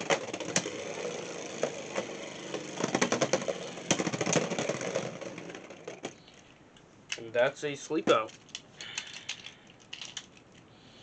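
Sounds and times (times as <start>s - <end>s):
spinning tops whirring and grinding: 0.0s - 6.5s.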